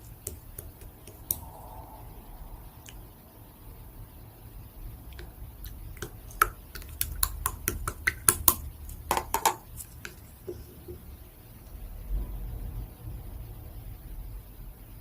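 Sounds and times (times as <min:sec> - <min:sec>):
slime clicking and popping: 0:00.2 - 0:01.6, 0:05.2 - 0:10.2.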